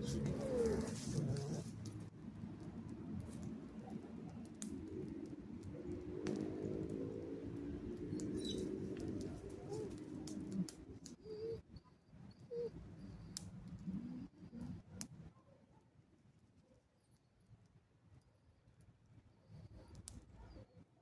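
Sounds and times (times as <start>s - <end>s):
dove cooing: 0.0s - 1.8s, 8.1s - 10.7s.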